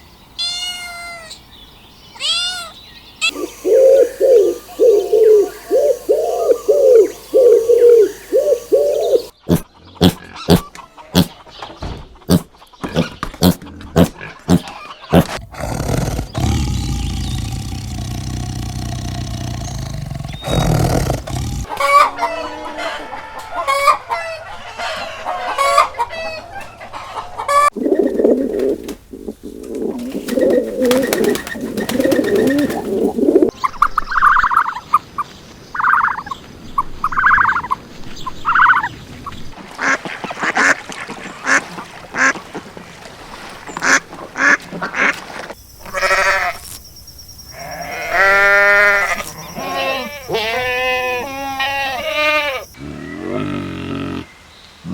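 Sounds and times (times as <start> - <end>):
farm animal calls: 12.3 - 22.4
chickens clucking: 26.7 - 33.5.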